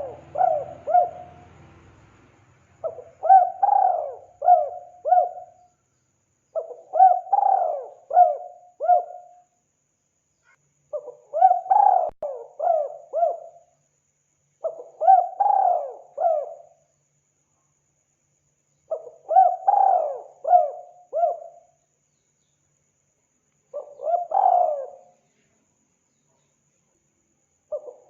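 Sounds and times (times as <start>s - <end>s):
dove cooing: 0.0s - 1.6s, 2.8s - 5.7s, 6.6s - 9.3s, 10.9s - 13.6s, 14.6s - 16.8s, 18.9s - 21.6s, 23.8s - 25.2s, 27.7s - 28.0s.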